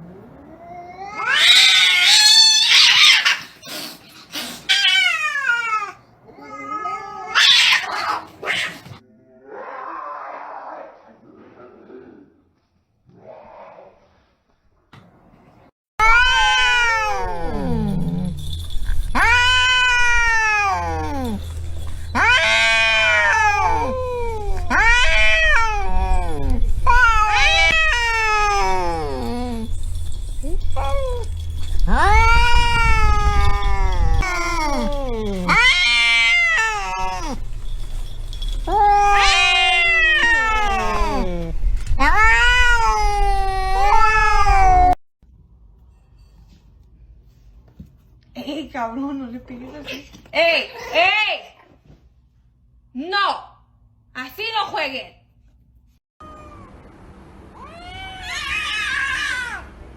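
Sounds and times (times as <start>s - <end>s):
cats yowling and screeching: 0.4s - 11.0s, 16.0s - 45.0s, 56.2s - 59.8s.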